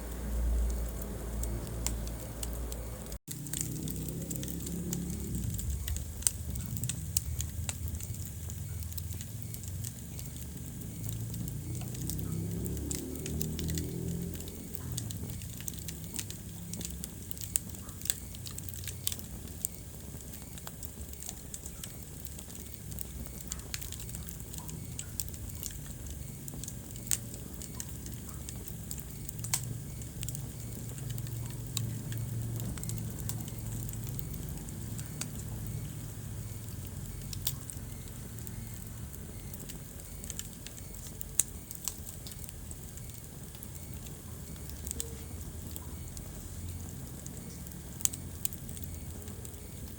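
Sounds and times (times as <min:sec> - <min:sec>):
low hum: 0:00.0 - 0:19.7
wood fire crackling: 0:00.0 - 0:49.9.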